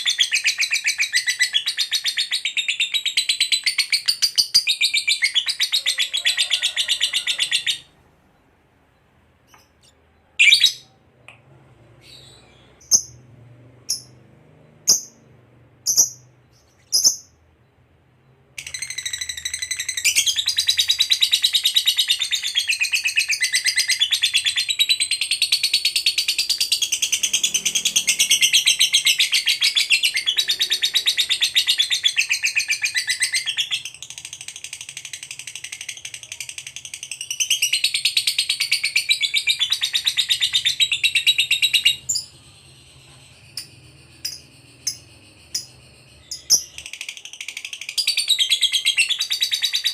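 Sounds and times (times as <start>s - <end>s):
lovebird chirps: 0.0s - 49.9s
lovebird high-pitched trilling chatter: 12.2s - 13.2s, 15.8s - 17.4s, 18.6s - 49.9s.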